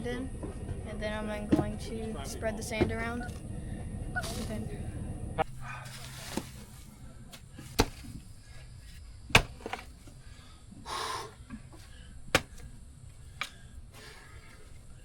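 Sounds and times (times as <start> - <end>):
rustling: 4.1 - 10.2.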